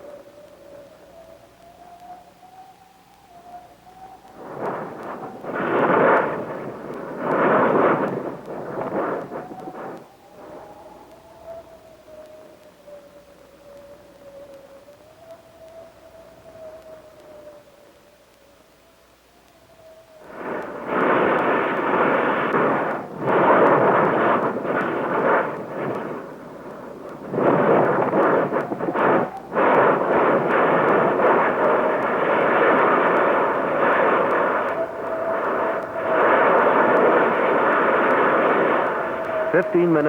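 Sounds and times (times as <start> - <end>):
roar of lava and gas surging: 4.4 - 10.7, 20.2 - 40.0.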